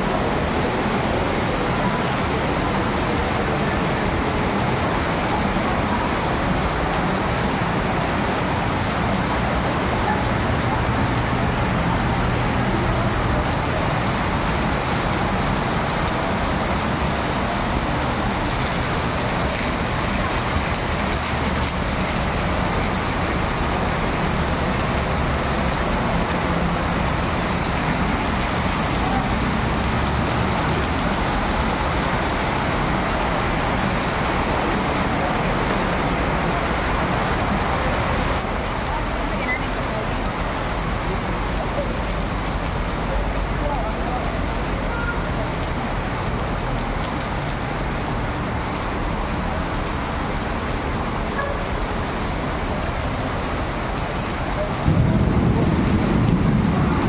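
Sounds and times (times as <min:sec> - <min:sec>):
heavy rain on pavement and roofs: 0:00.0 - 0:57.0
road traffic rumble: 0:00.0 - 0:57.0
runoff splashing from roof: 0:00.0 - 0:57.0.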